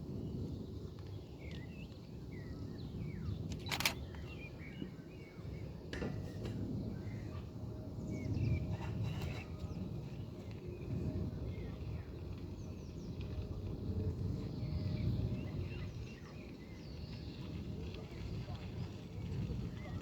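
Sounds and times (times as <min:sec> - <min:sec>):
small birds chirping: 0:00.6 - 0:05.8, 0:14.4 - 0:20.0
sharp click: 0:03.5 - 0:04.2.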